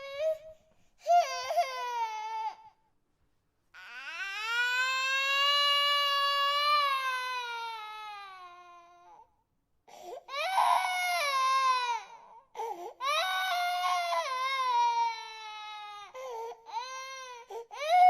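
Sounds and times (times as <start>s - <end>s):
infant crying: 0.0s - 2.8s, 9.9s - 18.0s.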